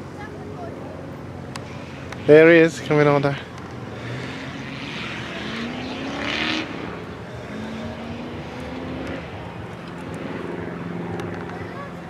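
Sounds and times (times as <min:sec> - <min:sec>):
distant engine accelerating: 0:00.7 - 0:12.0.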